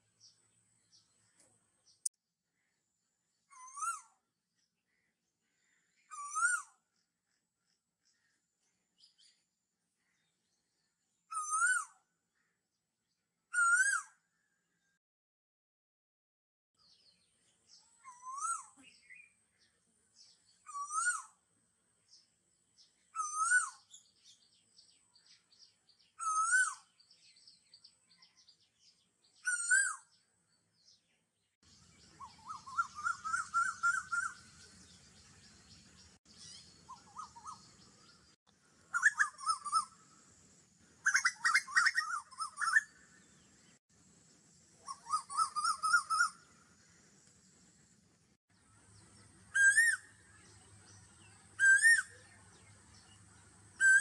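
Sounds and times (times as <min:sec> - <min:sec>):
bird chirps and warbling: 0:03.5 - 0:04.2, 0:04.9 - 0:06.8, 0:11.2 - 0:12.5, 0:13.5 - 0:14.5, 0:16.8 - 0:21.4, 0:22.8 - 0:40.0, 0:41.0 - 0:43.8, 0:44.8 - 0:46.9, 0:48.6 - 0:54.0
wavy whistled bird call: 0:03.5 - 0:04.2, 0:05.6 - 0:06.8, 0:11.3 - 0:12.0, 0:13.5 - 0:14.3, 0:17.7 - 0:19.4, 0:20.4 - 0:21.4, 0:23.0 - 0:24.4, 0:26.0 - 0:28.3, 0:29.4 - 0:30.2, 0:31.7 - 0:38.3, 0:38.9 - 0:40.0, 0:41.0 - 0:43.3, 0:44.8 - 0:46.6, 0:49.4 - 0:54.0.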